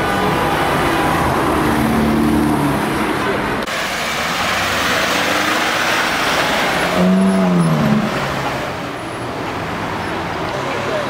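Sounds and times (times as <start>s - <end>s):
tyre and road noise: 0.0s - 11.0s
car engine passing by: 3.8s - 9.0s.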